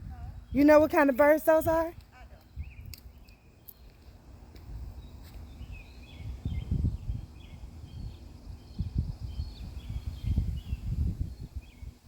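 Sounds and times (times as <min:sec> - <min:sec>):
small birds chirping: 0:00.1 - 0:12.0
low rumbling microphone noise: 0:04.5 - 0:12.0.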